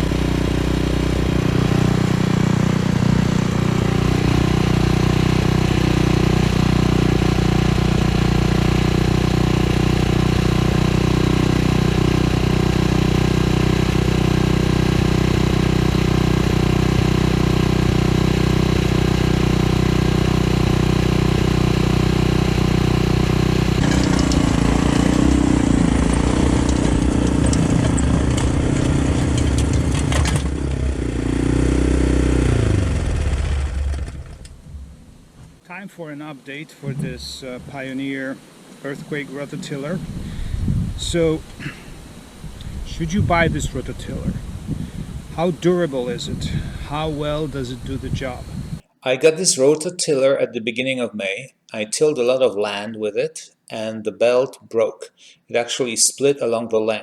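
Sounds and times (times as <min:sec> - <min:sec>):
rototiller engine running: 0:00.0 - 0:35.2, 0:38.9 - 0:48.8.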